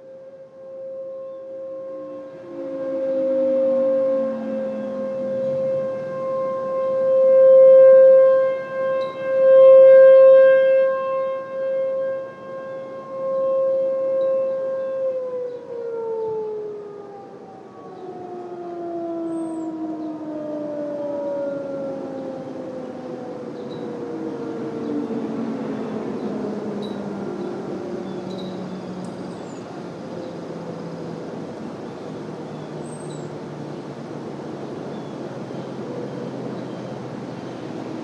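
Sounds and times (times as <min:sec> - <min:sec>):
warning sirens alert tone: 0:00.0 - 0:38.0
wind noise: 0:21.6 - 0:38.0.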